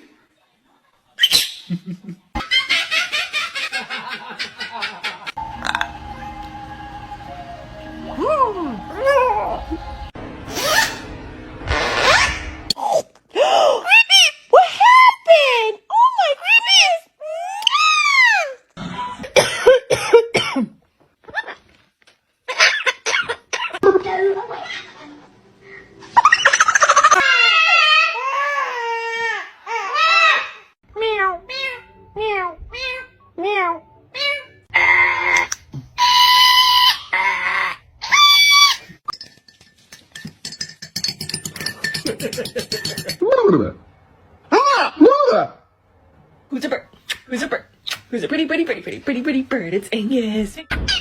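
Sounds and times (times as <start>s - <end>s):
parrot squawking: 34.2s - 38.9s.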